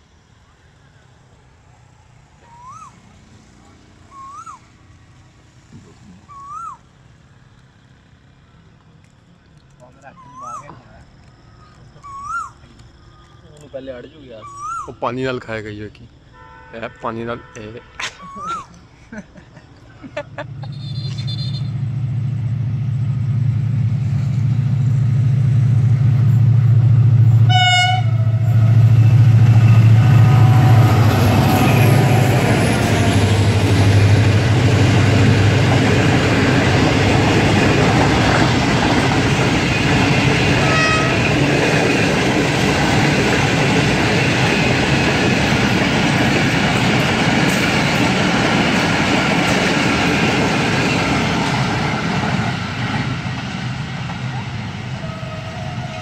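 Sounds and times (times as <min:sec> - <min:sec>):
diesel locomotive engine drone: 0:00.0 - 0:17.0, 0:18.2 - 0:56.0
train horn: 0:16.4 - 0:18.0, 0:20.7 - 0:21.9, 0:27.4 - 0:33.3, 0:40.5 - 0:41.4, 0:55.0 - 0:56.0
passenger coaches rumbling and clattering: 0:19.2 - 0:56.0.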